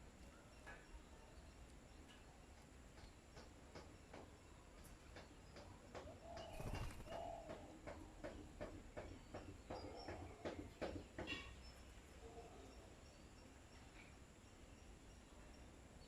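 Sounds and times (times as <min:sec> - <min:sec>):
bird calls and chirps: 0:00.0 - 0:16.0
birds pecking with light taps: 0:00.1 - 0:12.2.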